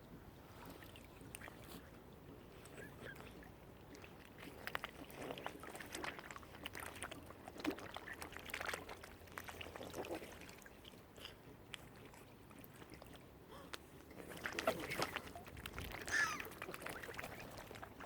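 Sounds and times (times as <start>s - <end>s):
water splashes: 0.4s - 18.0s
soft swan calls: 2.6s - 3.5s, 14.7s - 18.0s.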